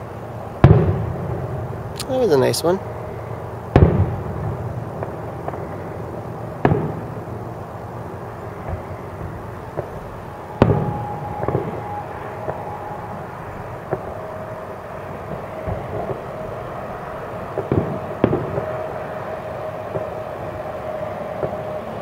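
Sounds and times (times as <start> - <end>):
distant firework booms: 0.6 - 1.5, 3.7 - 5.8, 6.6 - 7.2, 8.6 - 14.4, 17.6 - 18.8.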